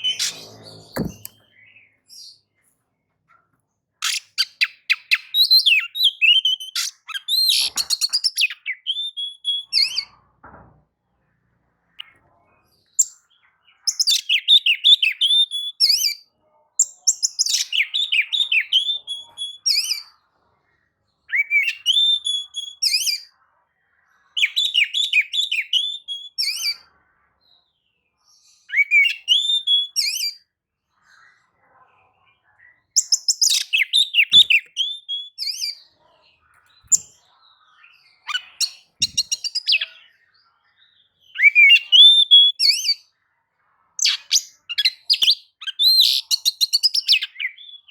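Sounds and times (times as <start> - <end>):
bird singing whistled trills: 41.3 - 43.0.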